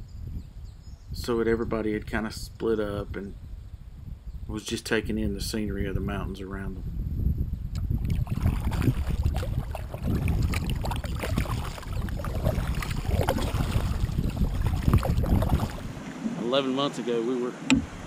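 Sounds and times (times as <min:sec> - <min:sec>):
wind rumble on microphone: 0:00.0 - 0:16.4
paddle splashes and drips: 0:07.8 - 0:16.4.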